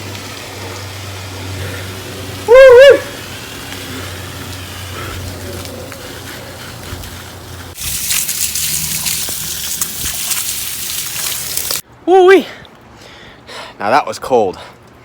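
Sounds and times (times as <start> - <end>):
hose spraying water: 0.0 - 11.8.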